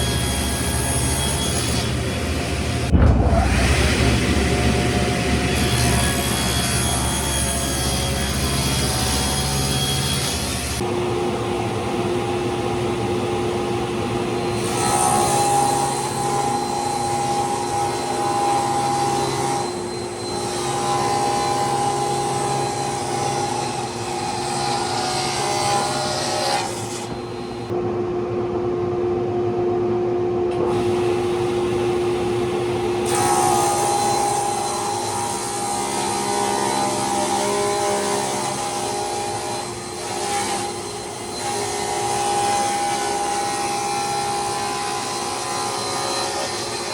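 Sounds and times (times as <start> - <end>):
power tool whining on wood: 32.7 - 46.9.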